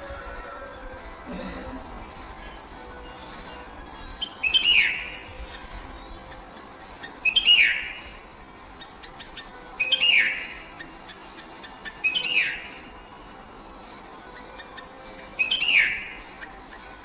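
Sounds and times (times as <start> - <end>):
bird chirping call: 3.5 - 8.2, 8.8 - 13.0, 14.3 - 17.0.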